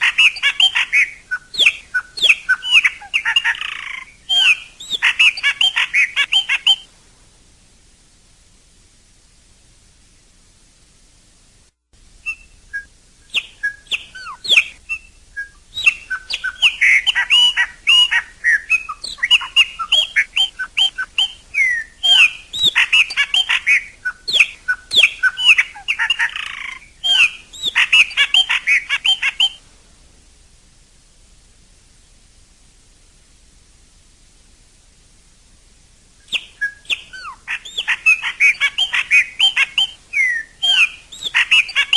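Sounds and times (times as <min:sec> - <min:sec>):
blackbird singing: 0:00.0 - 0:06.9, 0:12.2 - 0:29.6, 0:36.2 - 0:41.9.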